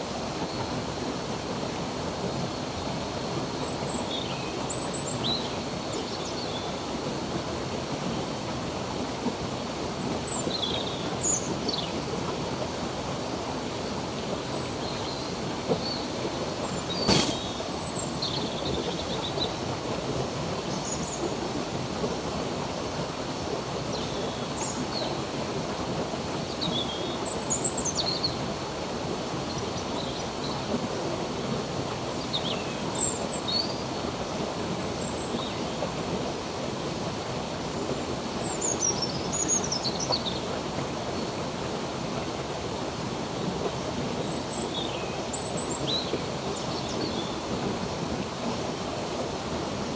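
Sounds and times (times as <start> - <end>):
sharp click: 17.0 - 17.5.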